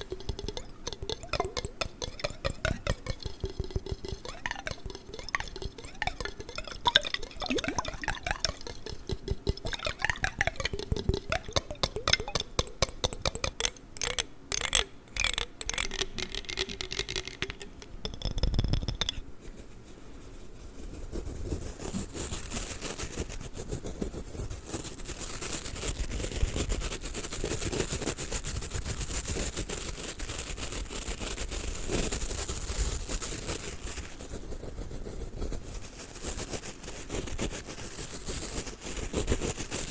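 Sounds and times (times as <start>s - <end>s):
brush hissing: 0.0s - 9.9s
tapping and clicking on water jar: 0.0s - 19.2s.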